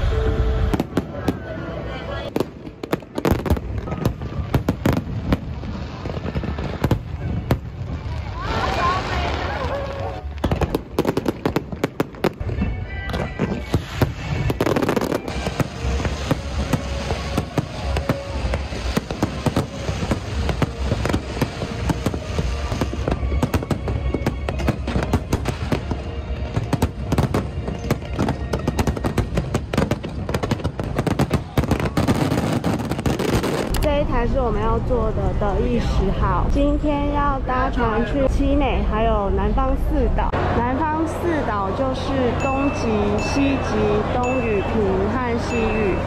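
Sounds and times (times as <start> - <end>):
music playing: 0.0 - 2.4, 12.1 - 33.6
fireworks bursting and crackling: 0.0 - 36.8.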